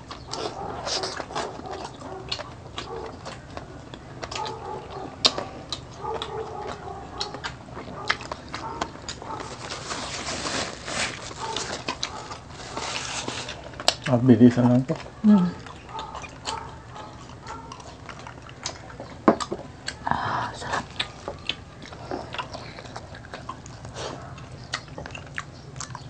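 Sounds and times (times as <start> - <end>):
wet chewing and lip-smacking: 0.0 - 10.3, 11.1 - 26.0
person humming: 15.2 - 15.6.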